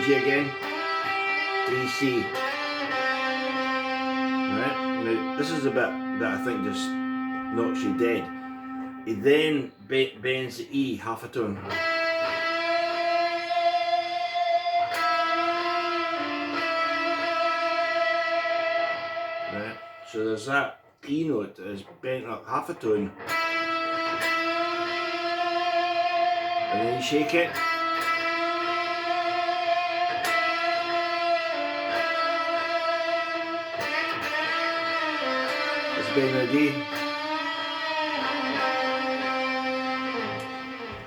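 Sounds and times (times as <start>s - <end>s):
electric guitar note with vibrato: 0.0s - 9.2s
electric guitar sustained bent note: 0.0s - 9.6s, 23.2s - 41.0s.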